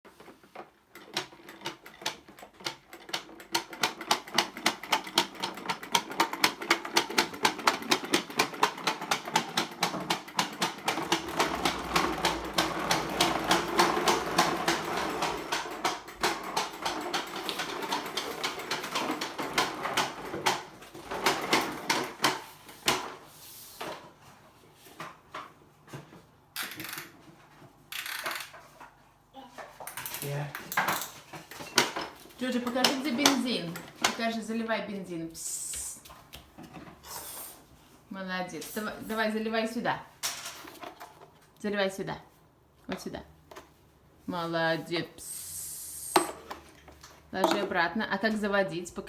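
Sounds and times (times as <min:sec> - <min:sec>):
toy lawnmower clicking: 0:00.5 - 0:23.0.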